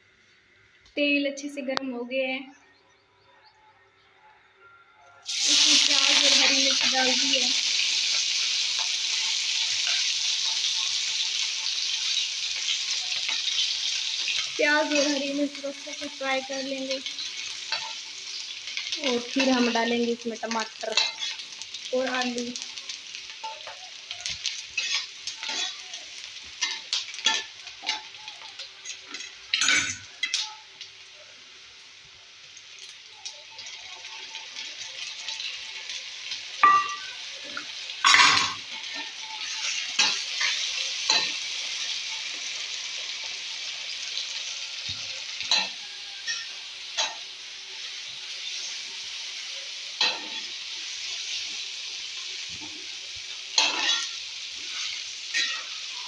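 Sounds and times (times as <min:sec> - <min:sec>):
onions sizzling in hot oil: 0:05.2 - 0:56.0
tomatoes clattering into pan: 0:20.6 - 0:30.6, 0:33.6 - 0:41.5.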